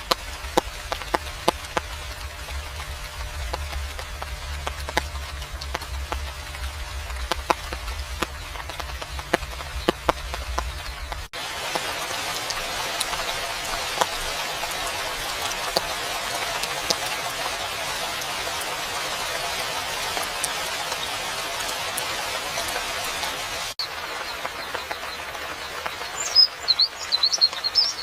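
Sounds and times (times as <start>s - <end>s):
low rumble: 0.0s - 11.3s
hissing downpour: 0.0s - 28.0s
rain drops tapping: 0.0s - 28.0s.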